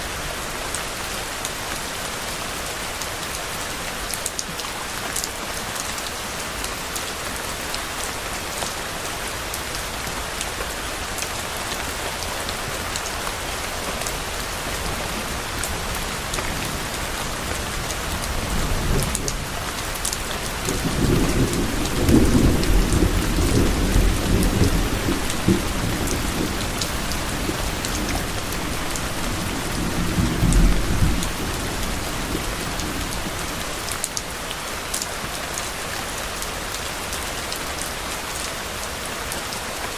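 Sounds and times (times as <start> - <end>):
heavy rain falling: 0.0 - 39.9
raindrops ticking: 15.0 - 35.1
distant thunder rumbling: 20.7 - 33.9.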